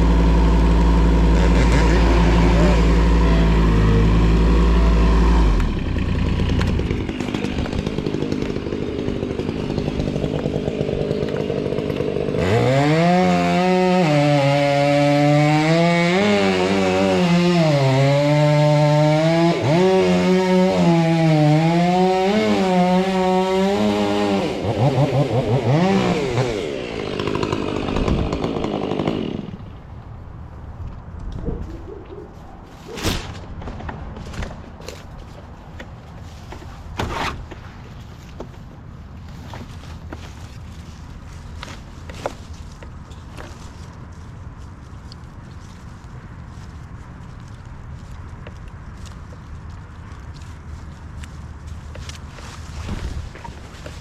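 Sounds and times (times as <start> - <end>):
chainsaw cutting wood: 0.0 - 29.7, 39.3 - 43.9, 51.2 - 54.0.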